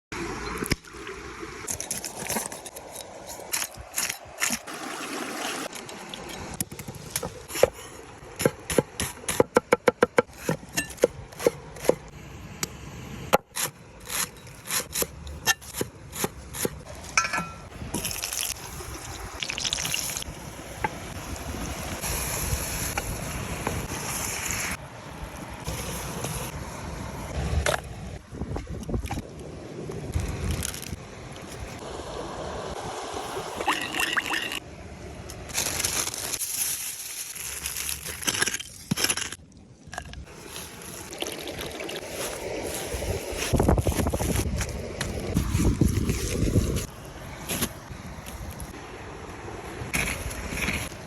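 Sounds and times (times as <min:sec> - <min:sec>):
water splashing: 0:00.2 - 0:07.6, 0:40.3 - 0:46.5.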